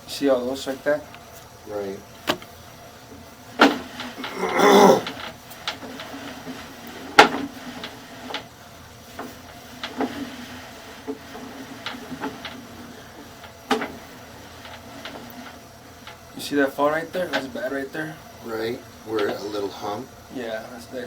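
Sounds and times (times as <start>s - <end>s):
faint steady hum: 0.0s - 7.0s
cable clicks and knocks: 2.2s - 2.5s.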